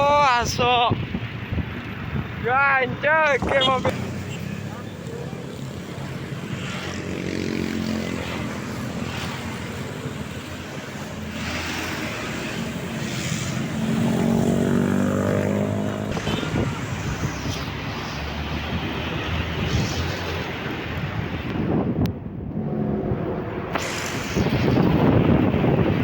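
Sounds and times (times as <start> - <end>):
truck diesel engine pulling hard: 22.5 - 26.0.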